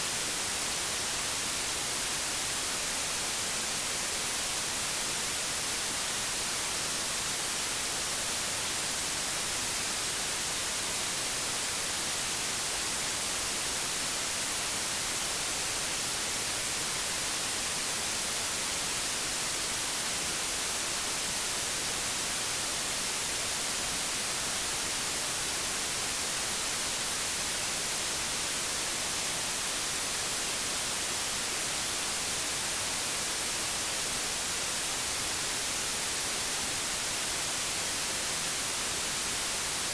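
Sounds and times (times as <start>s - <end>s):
television static hiss: 0.0s - 39.9s.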